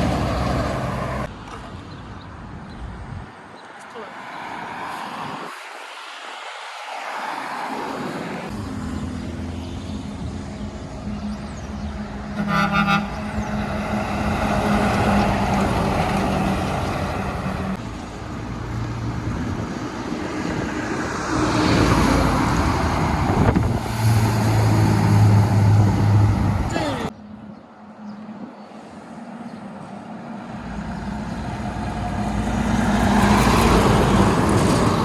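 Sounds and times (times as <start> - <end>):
heavy trucks passing: 0.0 - 1.8, 4.0 - 35.0
truck horn toot: 12.3 - 13.8.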